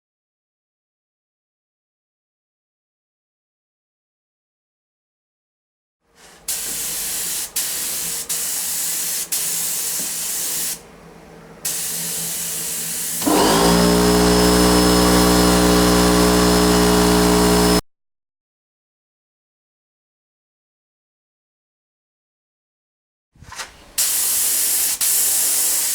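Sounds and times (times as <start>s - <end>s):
hissing bursts: 6.3s - 10.8s, 11.6s - 17.8s, 24.0s - 25.9s
motor whining: 11.2s - 17.8s.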